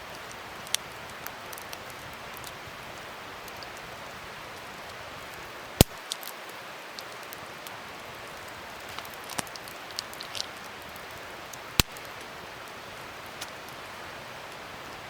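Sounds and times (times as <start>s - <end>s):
wood fire crackling: 0.0s - 15.0s
loud pop from fire: 5.8s - 6.1s, 11.8s - 12.1s.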